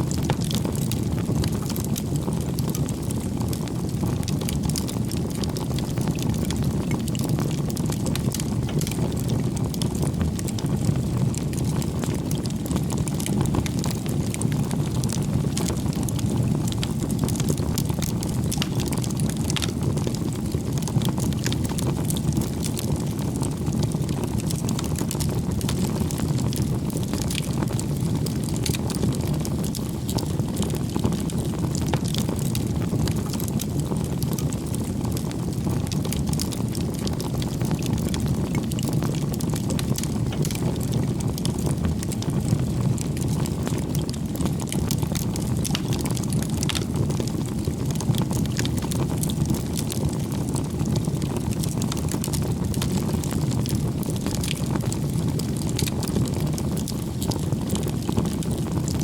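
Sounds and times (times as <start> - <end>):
bonfire flames rumbling: 0.0 - 59.0
burning wood crackling and popping: 0.0 - 59.0.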